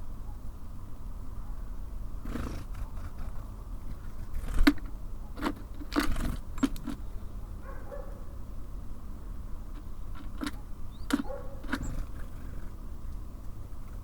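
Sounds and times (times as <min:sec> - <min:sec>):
low background rumble: 0:00.0 - 0:14.0
birds pecking and tapping: 0:03.1 - 0:07.1, 0:09.7 - 0:14.0.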